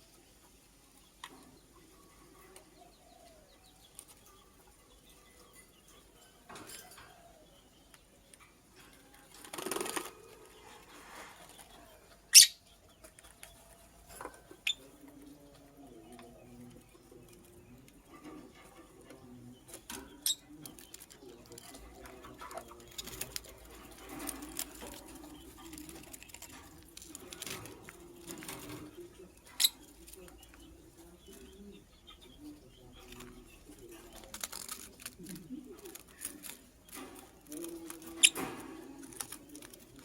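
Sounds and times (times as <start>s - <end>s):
bird chirping sharply: 12.3s - 12.7s.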